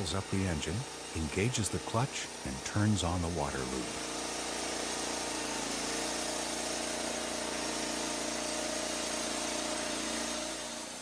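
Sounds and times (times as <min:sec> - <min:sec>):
sawmill engine running: 0:00.0 - 0:11.0.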